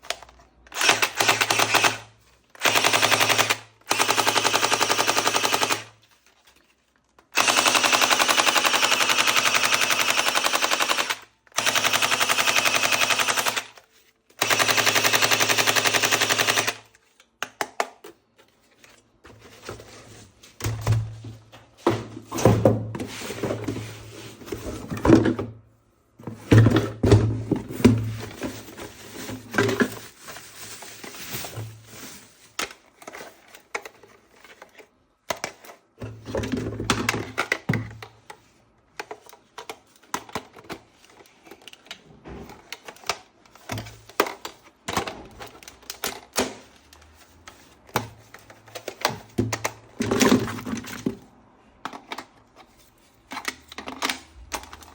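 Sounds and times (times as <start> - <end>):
toy gun rapid clicking: 0.7 - 5.9, 7.4 - 13.8, 14.4 - 16.9.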